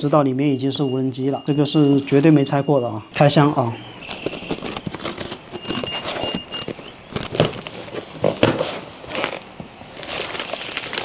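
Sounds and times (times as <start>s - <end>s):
cardboard box rustling and crinkling: 3.2s - 11.0s.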